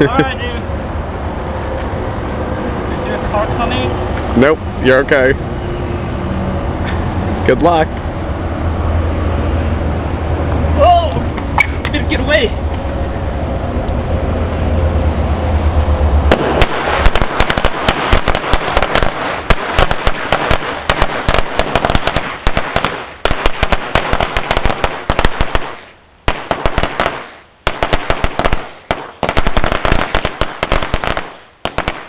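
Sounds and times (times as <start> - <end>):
firecrackers banging: 16.2 - 32.0.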